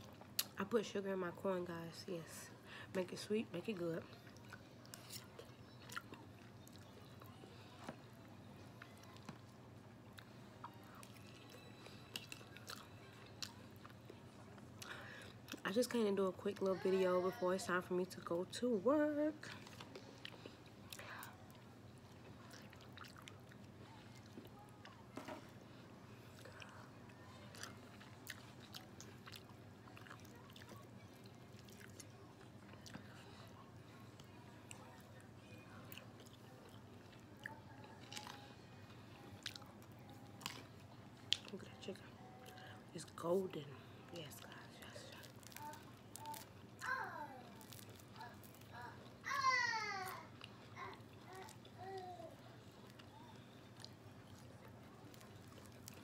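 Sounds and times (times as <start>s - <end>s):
person chewing crunchy food: 10.1s - 15.6s, 19.5s - 25.0s, 27.4s - 33.2s, 35.9s - 38.5s, 39.4s - 41.5s, 45.1s - 49.2s, 52.8s - 56.0s.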